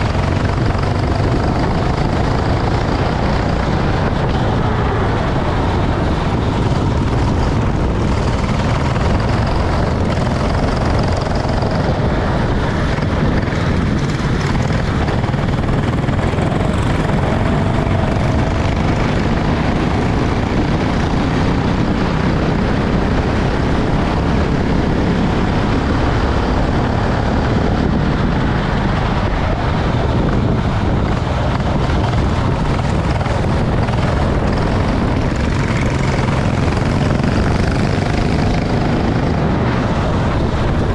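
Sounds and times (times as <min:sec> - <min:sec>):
racing kart engine drone: 0:00.0 - 0:40.9.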